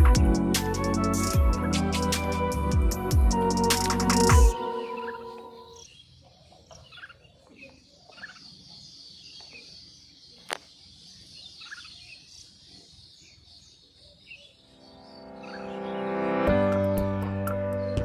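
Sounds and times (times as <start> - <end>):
high-pitched background chorus: 0.0 - 5.8, 14.7 - 16.8.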